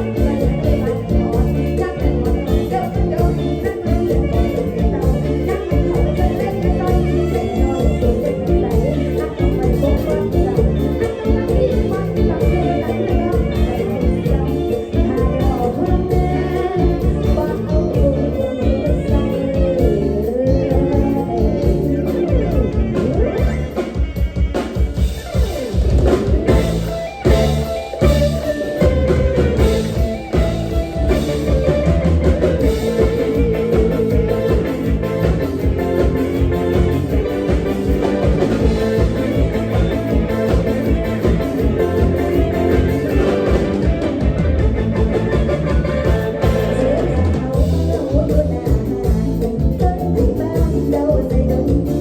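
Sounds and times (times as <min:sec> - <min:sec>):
person singing wavering melody: 0:00.0 - 0:24.0
drum kit and bass beat: 0:00.0 - 0:52.0
live band playing dance song: 0:00.0 - 0:52.0.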